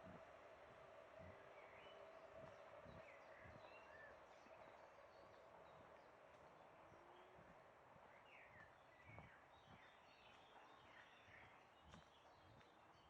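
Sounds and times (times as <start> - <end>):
soft footsteps on a path: 7.4 - 13.0.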